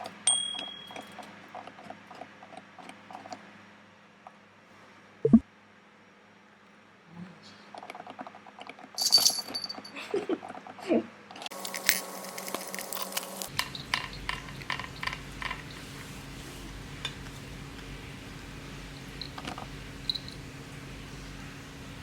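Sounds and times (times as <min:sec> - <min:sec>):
cats chewing and licking: 0:11.5 - 0:16.6.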